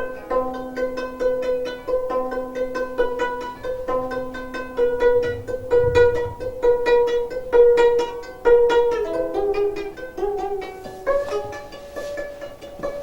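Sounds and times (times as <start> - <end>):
plucked zither notes: 0.0 - 13.0.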